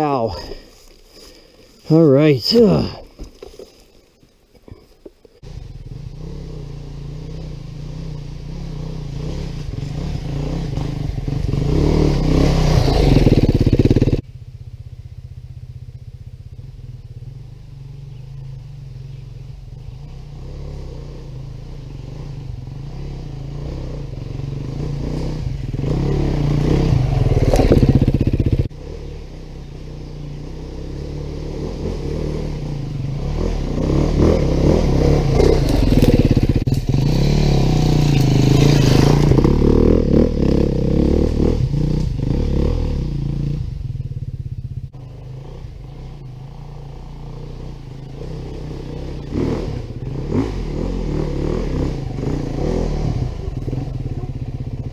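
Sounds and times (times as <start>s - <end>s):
dirt bike engine revving: 5.4s - 14.2s, 19.8s - 43.9s, 44.9s - 54.9s.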